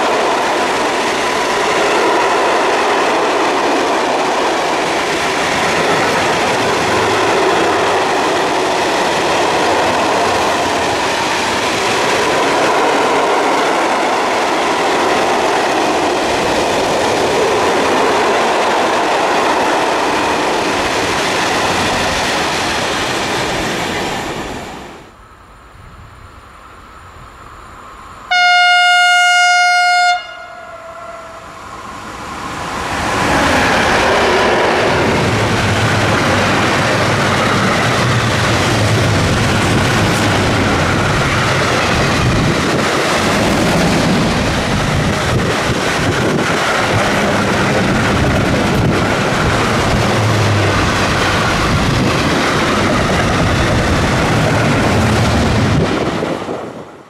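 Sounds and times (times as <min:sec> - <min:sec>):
freight train wheels on rails: 0:00.0 - 0:57.0
train horn blast: 0:28.3 - 0:31.5.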